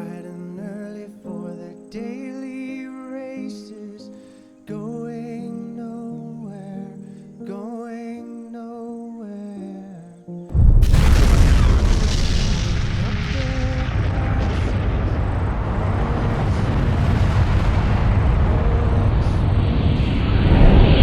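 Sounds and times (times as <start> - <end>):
music: 0.0 - 11.3
explosion boom: 10.5 - 21.0
rumbling roar: 10.6 - 21.0.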